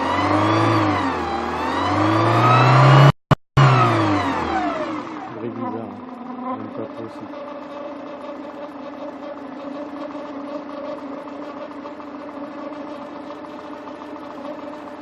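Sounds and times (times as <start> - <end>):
car engine idling: 4.2 - 15.0.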